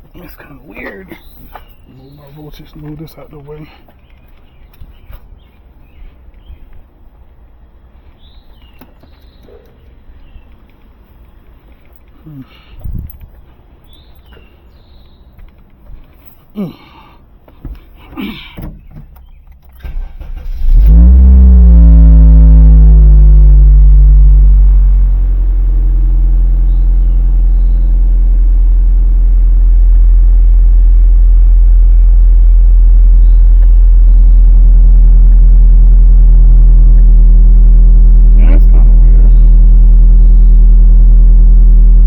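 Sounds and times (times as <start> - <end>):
car engine starting and idling: 19.3 - 42.0.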